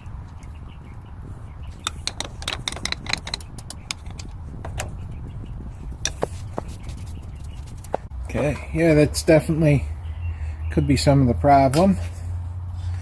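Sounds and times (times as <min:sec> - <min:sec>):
steady low rumble: 0:00.0 - 0:08.3
metal parts clinking and tapping: 0:01.8 - 0:05.0.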